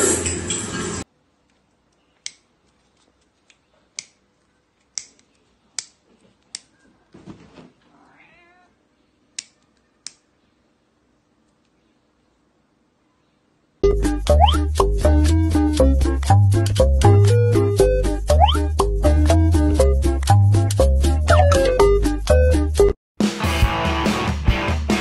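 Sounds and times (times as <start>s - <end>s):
cat meowing: 7.9s - 8.8s.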